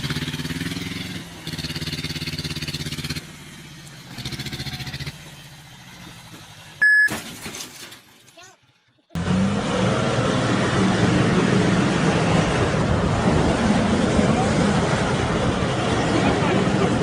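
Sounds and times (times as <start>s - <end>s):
vehicle engine revving: 0.0s - 6.8s, 9.1s - 17.0s
short high beep: 6.8s - 7.2s.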